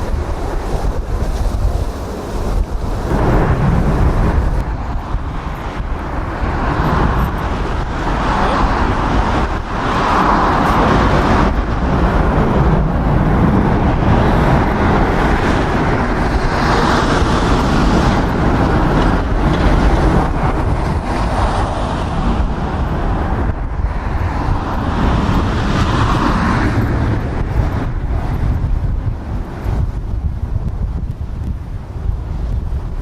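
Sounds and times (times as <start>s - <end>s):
jet airliner engines running: 0.0s - 33.0s
wind buffeting microphone: 0.0s - 33.0s.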